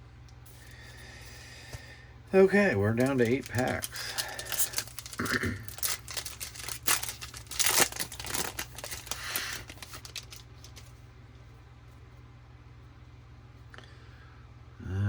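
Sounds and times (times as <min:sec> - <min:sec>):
foil wrapper tearing and crinkling: 0:02.7 - 0:11.0.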